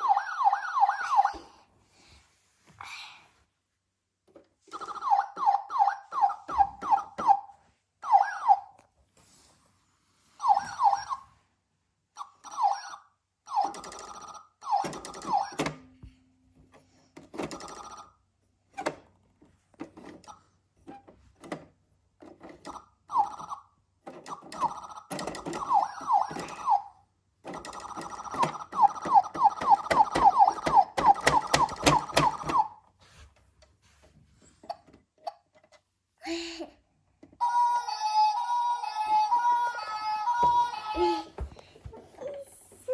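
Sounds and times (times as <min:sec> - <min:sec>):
toy electronic siren: 0:00.0 - 0:01.5, 0:04.7 - 0:08.8, 0:10.4 - 0:11.4, 0:12.2 - 0:15.7, 0:22.7 - 0:32.8, 0:37.4 - 0:41.2
plastic clicks and knocks: 0:27.4 - 0:32.7.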